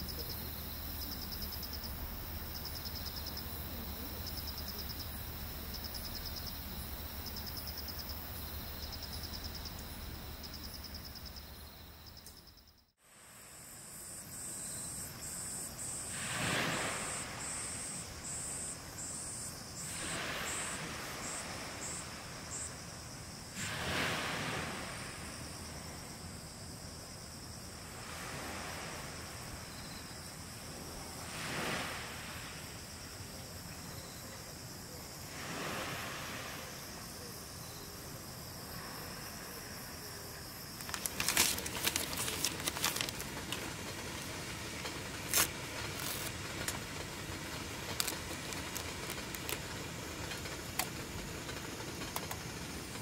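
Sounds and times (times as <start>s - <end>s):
insect chirring: 0.0s - 12.9s, 38.7s - 53.0s
small waves washing onto beach: 15.0s - 26.5s, 27.6s - 33.7s, 34.6s - 37.5s, 40.4s - 53.0s.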